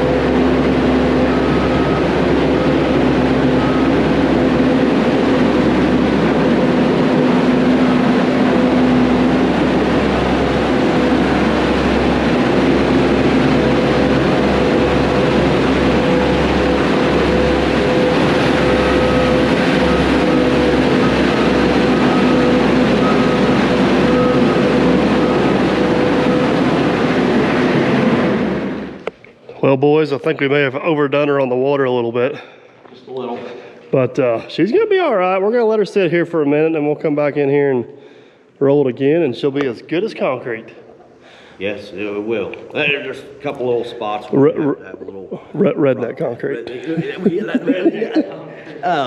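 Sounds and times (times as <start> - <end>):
compaction roller engine running: 0.0 - 29.1.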